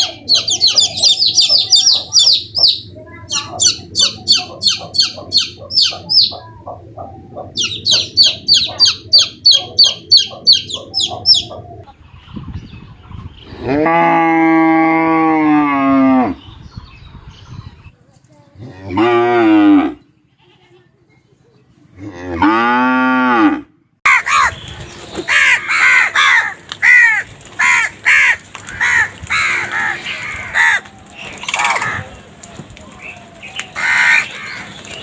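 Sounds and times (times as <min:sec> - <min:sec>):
cow mooing: 0:13.5 - 0:16.4, 0:18.6 - 0:20.0, 0:22.0 - 0:23.7.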